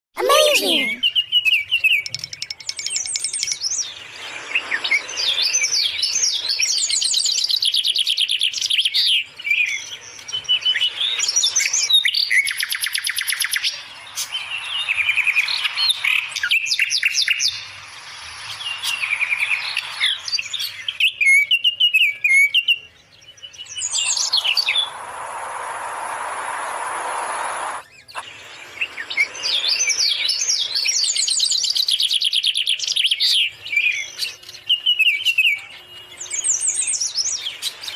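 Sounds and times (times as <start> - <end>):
steady hissing noise: 3.8 - 7.7, 10.0 - 21.0, 23.6 - 32.3.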